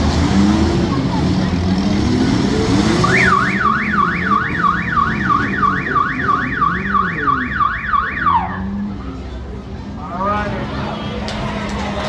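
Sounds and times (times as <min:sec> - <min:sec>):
electronic siren yelping: 0:03.0 - 0:08.7.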